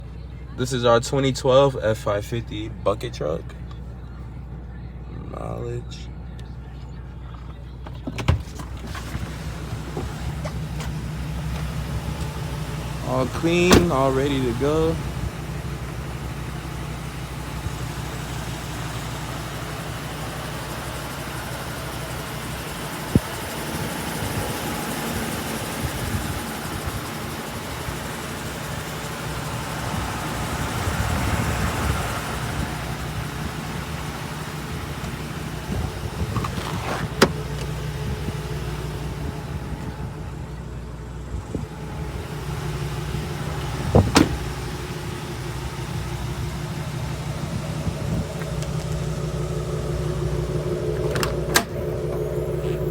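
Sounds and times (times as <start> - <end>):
engine idling: 0.0 - 52.9
sharp clicks: 50.4 - 52.9.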